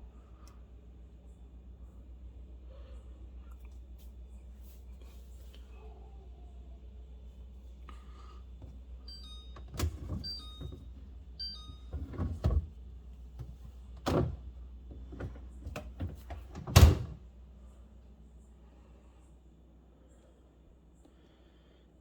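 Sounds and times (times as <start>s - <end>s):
short electronic beeps: 9.1s - 9.6s
refrigerator door knocks and thuds: 14.0s - 17.2s.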